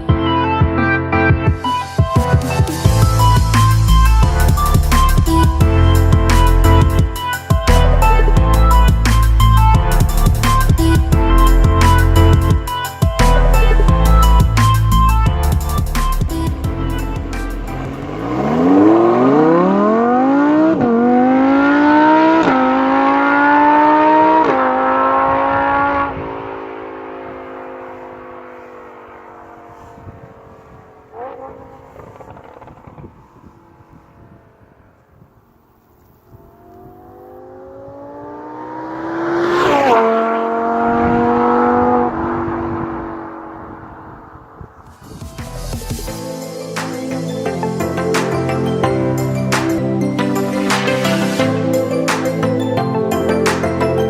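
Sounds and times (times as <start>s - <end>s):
sports car engine accelerating: 2.5s - 46.0s.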